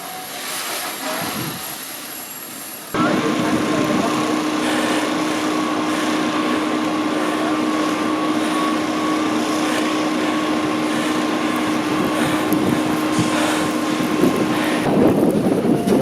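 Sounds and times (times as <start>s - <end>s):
fire engine droning: 0.0s - 16.0s
steady rushing noise: 0.0s - 16.0s
two-pitch hum: 2.9s - 15.3s.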